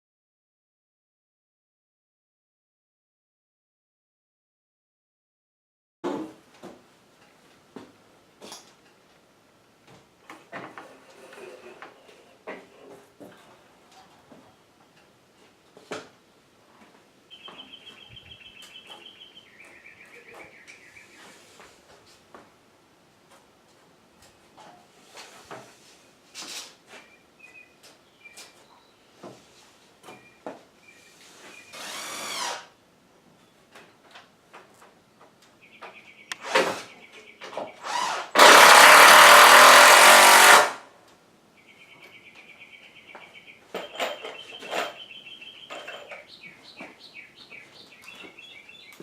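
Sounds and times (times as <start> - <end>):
power drill: 31.7 - 32.7, 37.8 - 40.8.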